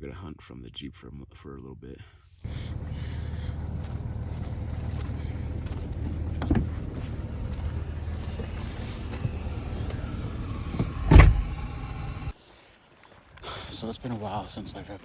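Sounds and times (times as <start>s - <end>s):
car engine and road rumble: 2.4s - 12.4s
heavy thump: 6.0s - 12.3s.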